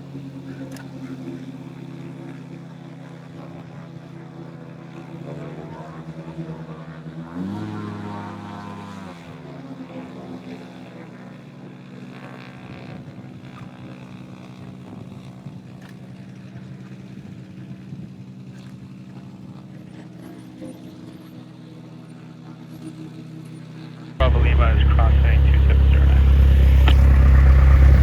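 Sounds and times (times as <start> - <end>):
light aircraft engine droning: 24.2 - 28.0.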